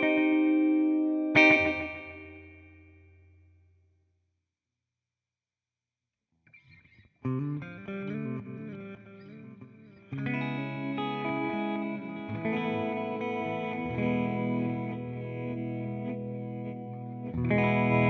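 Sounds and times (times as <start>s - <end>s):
electric guitar with delay: 0.0s - 2.8s, 6.8s - 18.0s.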